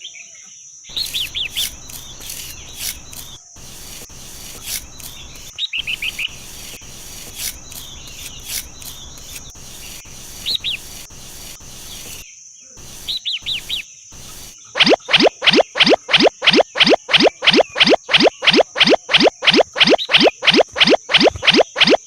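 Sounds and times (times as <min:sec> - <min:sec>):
small birds chirping: 0:00.9 - 0:12.2, 0:12.8 - 0:22.0
high insect drone: 0:00.9 - 0:14.7
rising sweep sound effects: 0:14.8 - 0:22.0.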